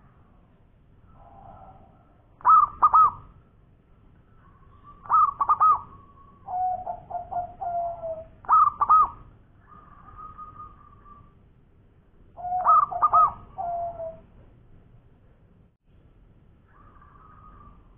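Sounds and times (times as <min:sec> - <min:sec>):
soft trilled dove coos: 0:01.2 - 0:03.2, 0:04.4 - 0:11.4, 0:12.4 - 0:14.3
dove rippling calls: 0:01.2 - 0:03.3, 0:04.3 - 0:11.4, 0:12.4 - 0:14.3, 0:16.6 - 0:17.9.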